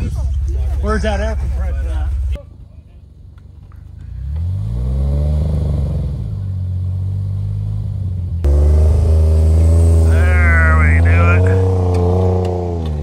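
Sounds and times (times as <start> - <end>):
engine revving: 4.0 - 13.0
loud engine drone: 4.2 - 13.0.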